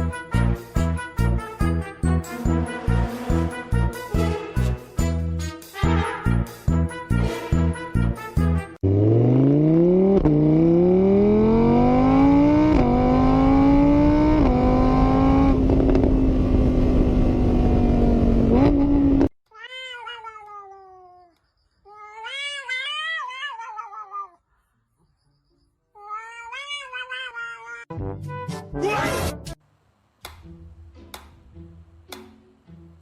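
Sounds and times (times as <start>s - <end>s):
car engine accelerating: 8.8s - 19.3s
cat meowing: 19.5s - 24.4s, 26.0s - 27.9s.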